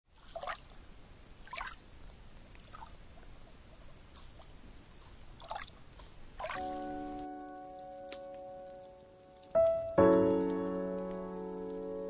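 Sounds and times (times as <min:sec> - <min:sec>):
water splashes: 0:00.1 - 0:03.2, 0:04.0 - 0:07.3
steady low hiss: 0:00.1 - 0:12.0
lake water lapping: 0:04.1 - 0:07.2.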